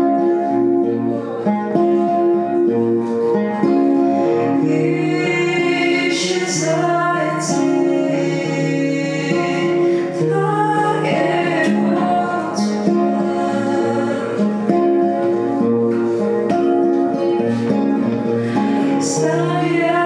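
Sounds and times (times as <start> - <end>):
acoustic guitar: 0.0 - 20.0
woman singing: 4.2 - 15.6, 18.4 - 20.0.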